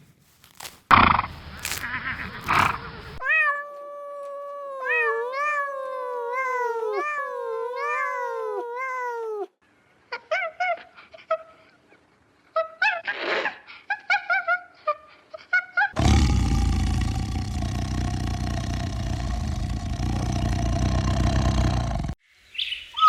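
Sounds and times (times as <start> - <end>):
noisy animal sound: 0.9 - 3.3, 15.9 - 22.2
cat meowing: 3.2 - 9.5.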